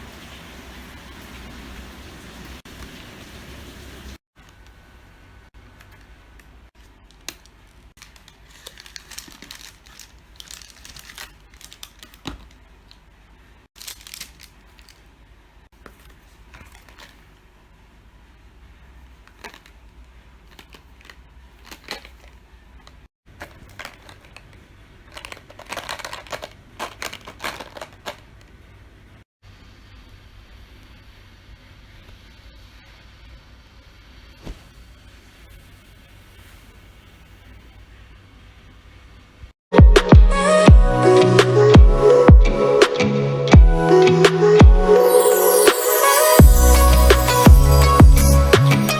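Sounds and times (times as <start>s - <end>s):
wrapper crinkling and tearing: 6.9s - 13.0s, 13.8s - 15.1s, 19.3s - 19.8s, 20.5s - 28.5s.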